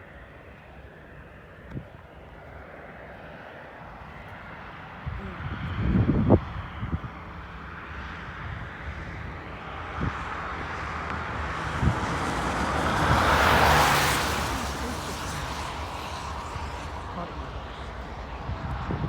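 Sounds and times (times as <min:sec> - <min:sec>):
vehicle passing by: 0:05.3 - 0:19.0.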